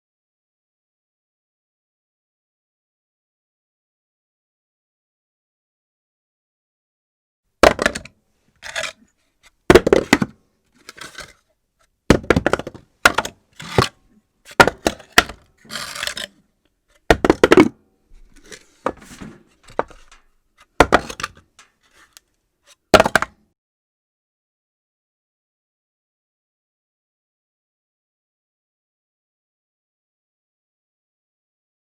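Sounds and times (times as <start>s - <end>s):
objects rattling and rolling: 17.1s - 22.2s.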